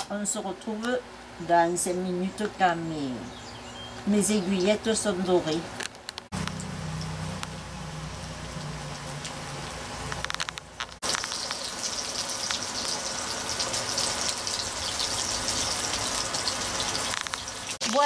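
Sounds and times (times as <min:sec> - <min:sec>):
chicken frying in oil: 0:06.4 - 0:18.0.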